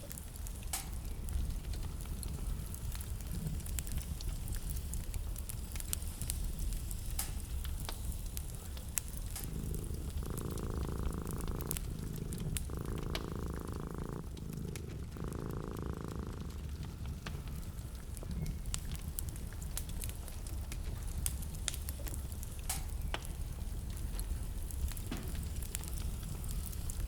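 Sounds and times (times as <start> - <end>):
fire crackling and popping: 0.0 - 27.0
fire low rumble: 0.0 - 27.0
low rhythmic pulsing hum: 0.0 - 27.0.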